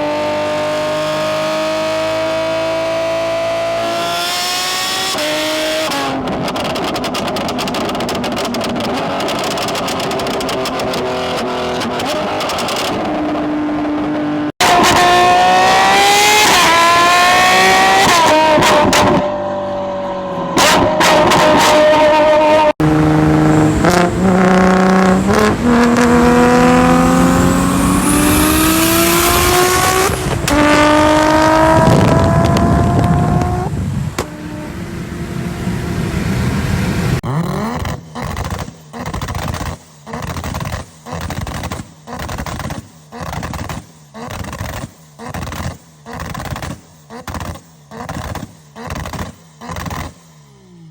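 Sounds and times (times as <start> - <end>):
cars accelerating through gears: 0.0 - 39.2
car engines at full throttle: 0.0 - 50.9.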